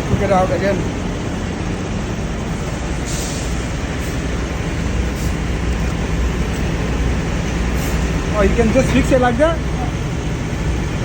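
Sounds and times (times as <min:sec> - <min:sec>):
truck engine rumbling: 0:00.0 - 0:11.0
short air hisses: 0:03.0 - 0:04.3, 0:07.7 - 0:08.2.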